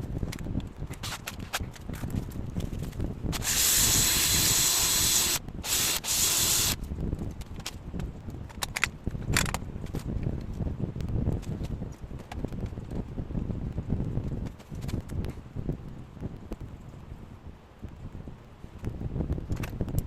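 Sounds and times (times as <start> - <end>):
loud hissing spray: 3.4 - 6.8.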